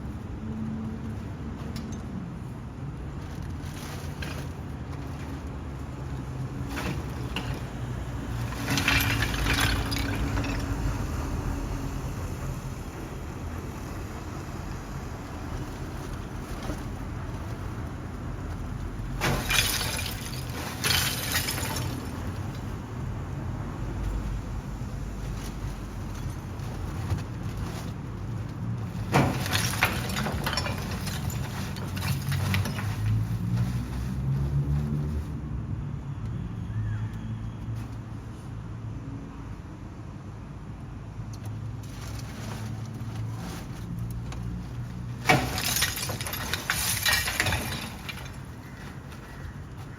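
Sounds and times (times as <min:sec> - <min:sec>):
rattling and clinking: 0:08.3 - 0:10.9, 0:18.4 - 0:22.8, 0:25.3 - 0:34.1, 0:41.8 - 0:49.9
clattering knocks: 0:28.9 - 0:33.6, 0:45.2 - 0:49.9.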